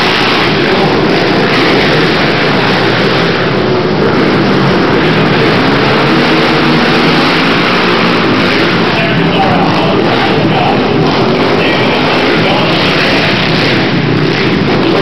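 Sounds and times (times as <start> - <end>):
quad engines running hard: 0.0 - 15.0.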